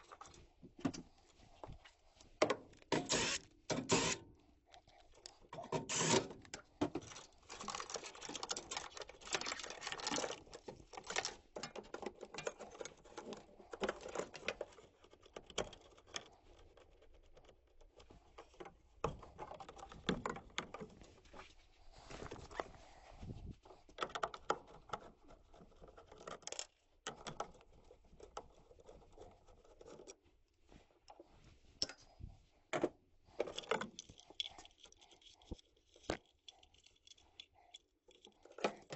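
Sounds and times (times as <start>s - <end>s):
hand tools clicking and scraping: 2.4s - 4.4s, 5.0s - 21.0s.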